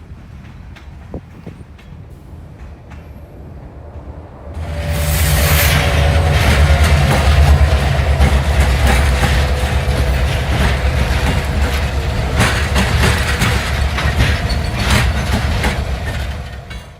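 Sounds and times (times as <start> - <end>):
freight train rumbling: 0.0 - 16.9
wheels clicking over rail joints: 5.8 - 16.9.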